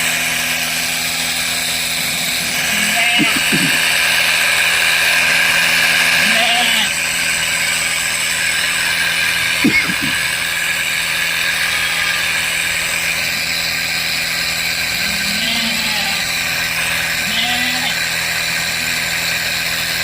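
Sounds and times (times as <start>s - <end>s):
motorized sprayer drone: 0.0s - 20.0s.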